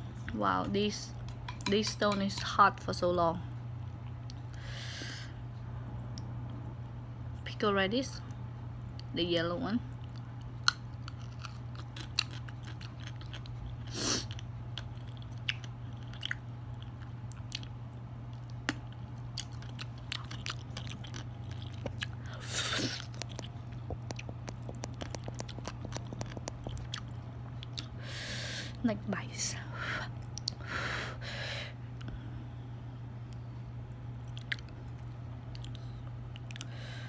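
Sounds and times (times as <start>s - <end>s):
steady low hum: 0.0s - 37.0s
chewing and crunching: 9.9s - 28.0s, 34.2s - 36.8s
sharp mouth clicks: 22.9s - 27.9s, 30.3s - 30.6s.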